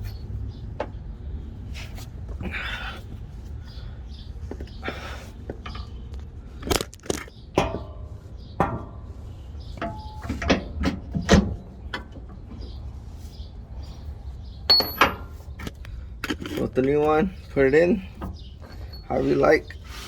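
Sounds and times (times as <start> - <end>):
metallic clanks of tools handled: 14.7 - 17.0.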